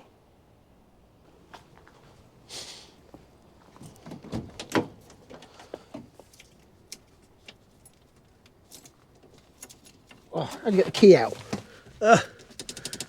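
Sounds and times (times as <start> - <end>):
keys rattling: 5.0 - 10.3.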